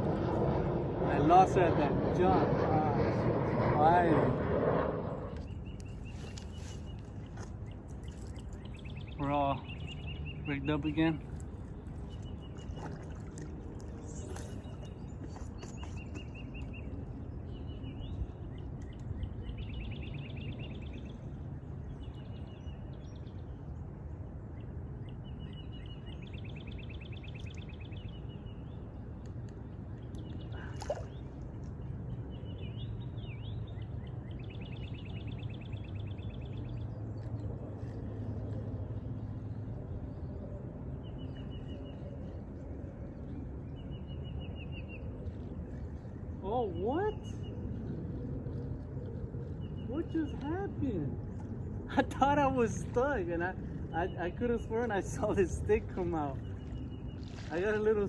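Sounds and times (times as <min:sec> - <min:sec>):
steady low rumble: 0:00.0 - 0:58.0
birds singing trills: 0:05.2 - 0:58.0.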